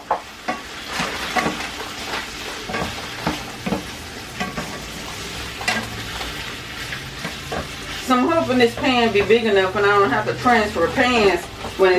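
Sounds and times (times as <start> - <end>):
chicken sizzling in a pan: 0.0 - 11.9.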